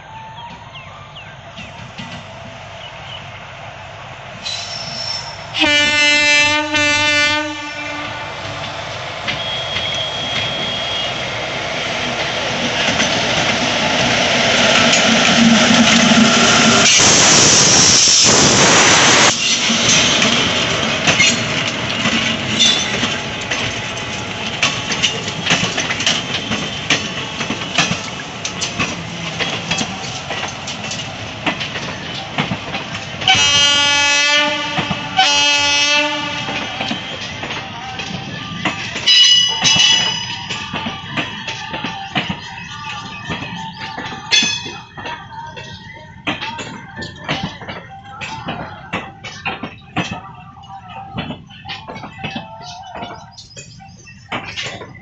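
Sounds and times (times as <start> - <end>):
train passing close by: 0.0 - 55.0
locomotive horn: 4.5 - 8.5, 9.3 - 11.3, 33.2 - 37.3
train wheels clacking over rail joints: 19.3 - 55.0.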